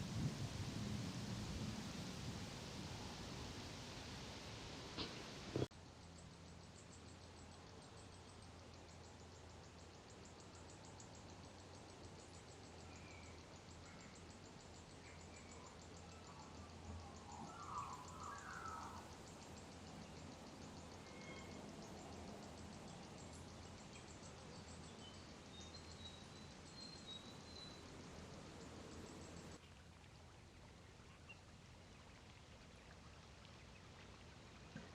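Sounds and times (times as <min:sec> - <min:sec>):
insect pulsing chirr: 0:09.9 - 0:29.6.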